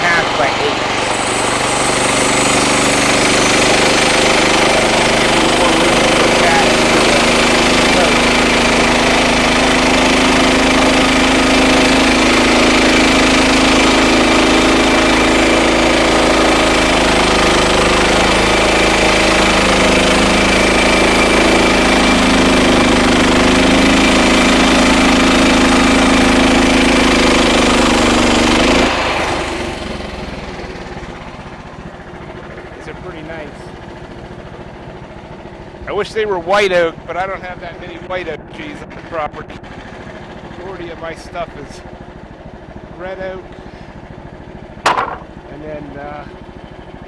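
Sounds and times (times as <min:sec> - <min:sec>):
blade cutting wood: 0:00.0 - 0:30.0, 0:44.9 - 0:45.3
sawmill engine drone: 0:00.0 - 0:47.0.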